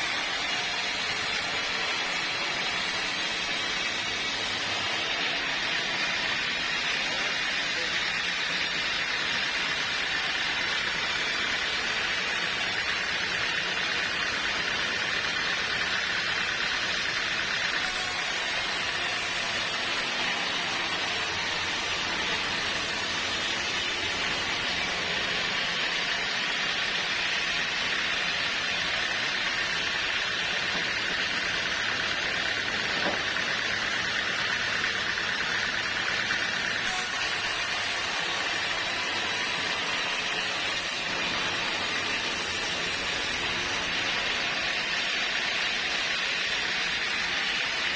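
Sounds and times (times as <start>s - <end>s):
sawmill machinery running: 0.0s - 47.9s.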